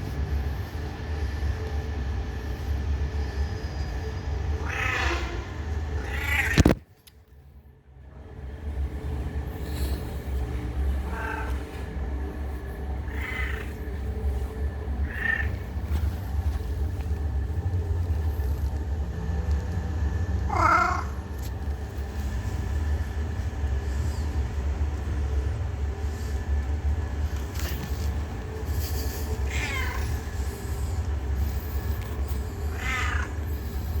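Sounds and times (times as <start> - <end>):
steady low rumble: 0.0 - 34.0
cat meowing: 4.5 - 6.8, 10.9 - 11.9, 12.9 - 15.8, 20.4 - 21.2, 29.2 - 30.5, 32.5 - 33.5.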